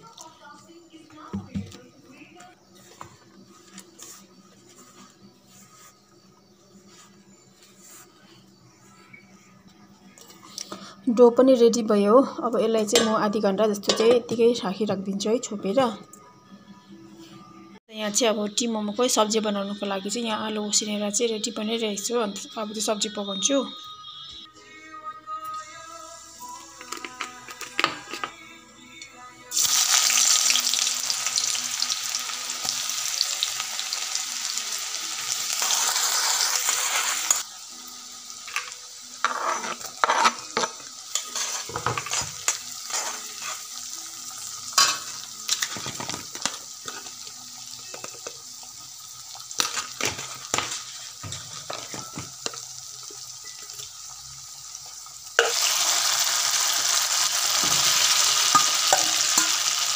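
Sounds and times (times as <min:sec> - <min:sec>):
vegetables sizzling in hot oil: 0:29.5 - 0:59.9
spatula scraping and knocking pan: 0:39.2 - 0:43.6.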